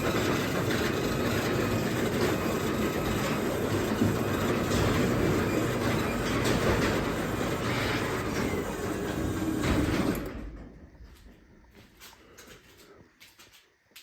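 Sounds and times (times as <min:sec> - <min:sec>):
garage door opener motor running: 0:00.0 - 0:11.0
door rumbling on tracks: 0:00.0 - 0:11.6.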